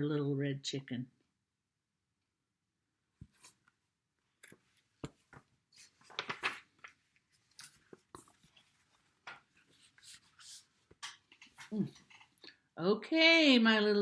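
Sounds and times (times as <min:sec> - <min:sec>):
book page rustling: 0:03.2 - 0:03.7, 0:04.4 - 0:12.4.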